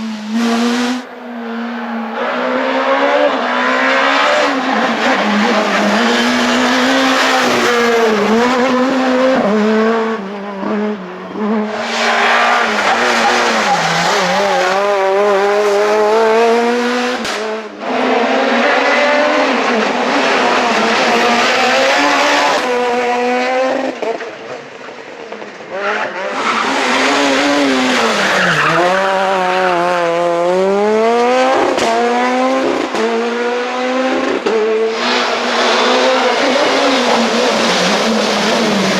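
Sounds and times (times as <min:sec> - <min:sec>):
car engine revving and shifting gear: 0:00.0 - 0:38.9.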